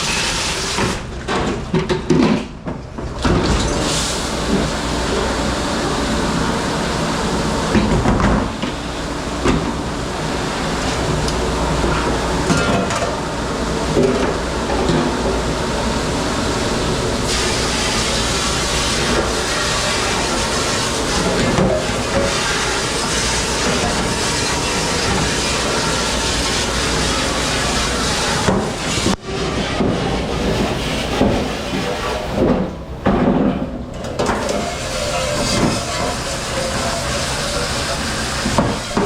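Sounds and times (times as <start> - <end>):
dish machine rushing: 0.0 - 39.0
water spraying: 15.4 - 29.0, 34.5 - 39.0.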